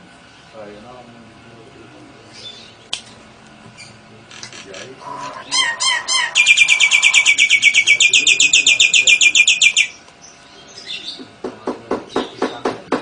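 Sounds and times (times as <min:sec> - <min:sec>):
songbird fast high trill: 0:05.1 - 0:10.0.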